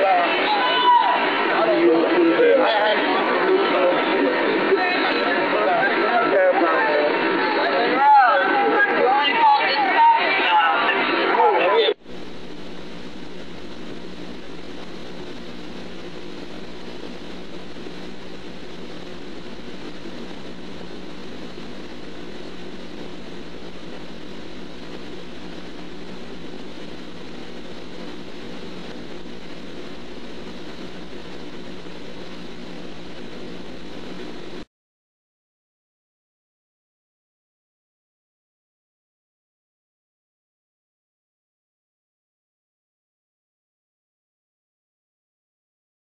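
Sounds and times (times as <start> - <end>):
background hum and hiss: 11.6 - 34.7.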